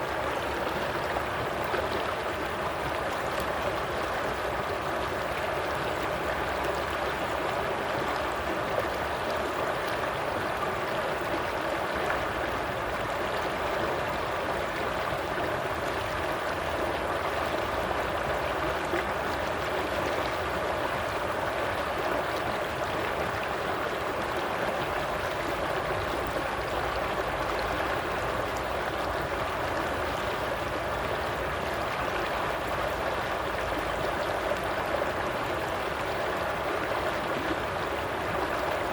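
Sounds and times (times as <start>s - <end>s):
stream water burbling over rocks: 0.0s - 38.9s.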